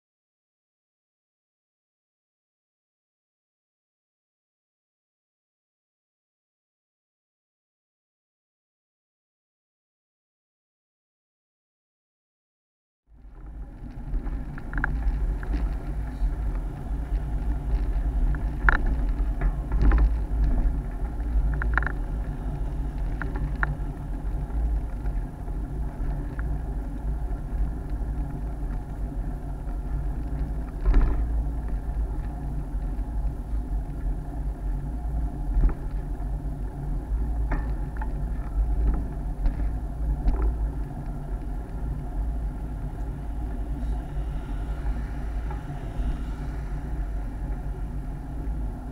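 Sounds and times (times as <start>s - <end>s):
wind and road rumble: 13.1s - 48.9s
bike rattling over bumps: 13.2s - 44.1s.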